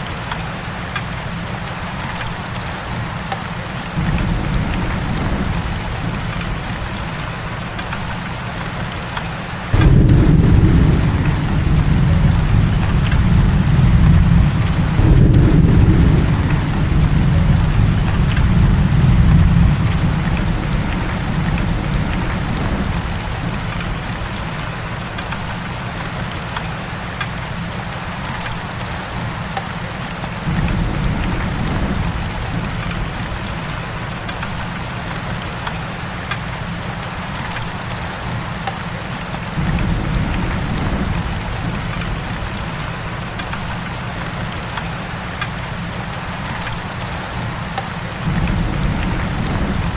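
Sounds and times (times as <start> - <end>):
heavy rain falling: 0.0 - 49.9
thunder rumbling: 4.0 - 8.6, 9.7 - 25.4, 30.4 - 35.2, 39.4 - 44.6, 48.2 - 49.9.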